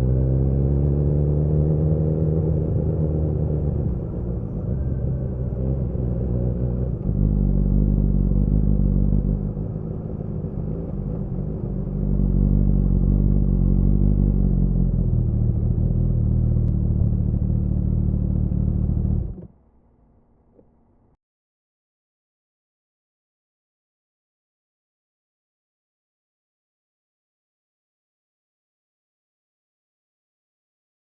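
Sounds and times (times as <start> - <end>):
motorcycle engine at low revs: 0.0 - 19.5.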